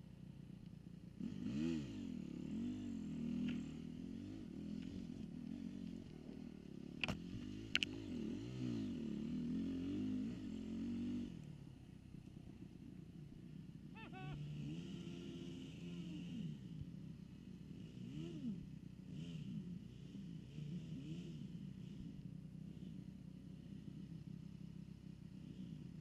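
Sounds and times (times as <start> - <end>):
dirt bike engine revving: 1.2 - 11.5, 13.2 - 16.9, 17.6 - 23.0.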